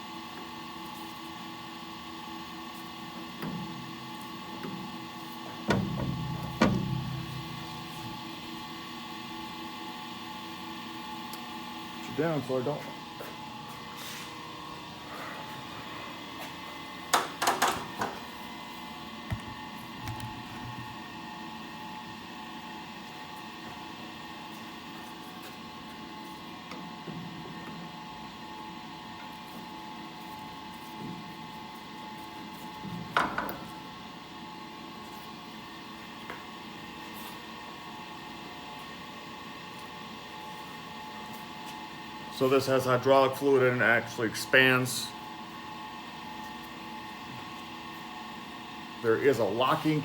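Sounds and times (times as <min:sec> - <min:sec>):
steady hum: 0:01.2 - 0:17.1.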